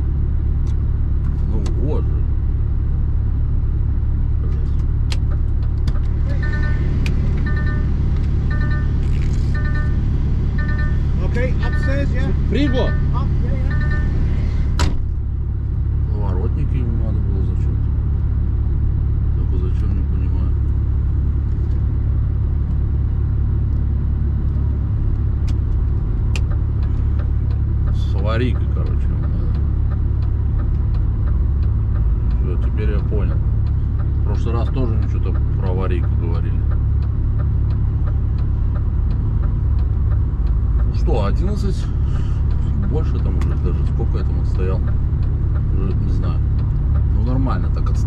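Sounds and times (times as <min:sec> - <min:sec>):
diesel engine idling: 0:00.0 - 0:48.0
high electronic beep: 0:06.2 - 0:14.8.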